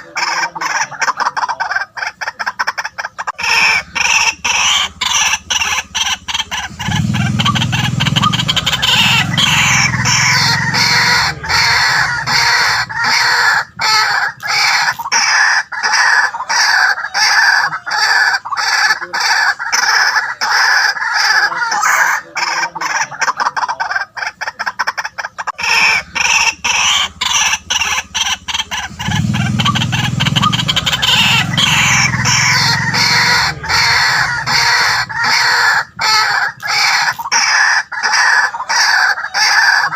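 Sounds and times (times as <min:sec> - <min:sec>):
bird harsh repeated calls: 0:00.0 - 0:39.9
deeper bird notes: 0:03.4 - 0:16.2, 0:25.6 - 0:37.3.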